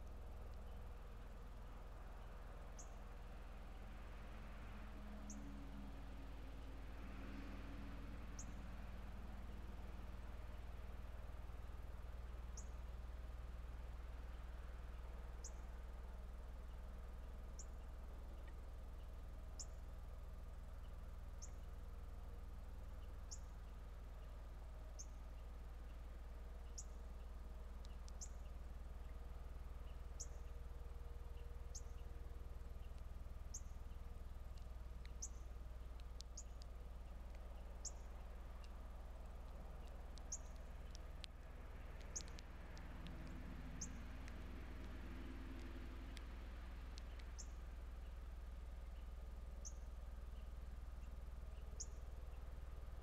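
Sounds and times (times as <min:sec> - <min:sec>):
low steady hum: 0:00.0 - 0:53.0
bird chip calls: 0:32.7 - 0:38.8, 0:39.5 - 0:48.2.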